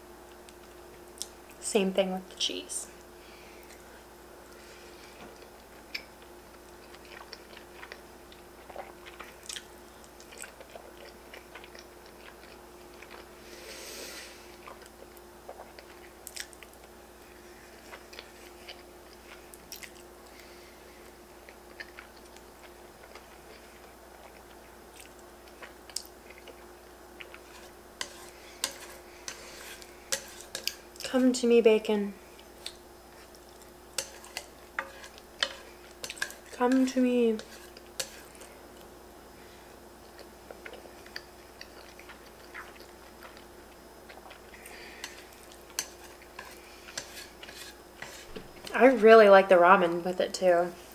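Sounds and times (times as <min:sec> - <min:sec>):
faint steady hum: 0:00.0 - 0:50.9
person chewing noodles: 0:05.1 - 0:16.9, 0:17.5 - 0:31.0, 0:32.3 - 0:36.6, 0:39.5 - 0:48.3.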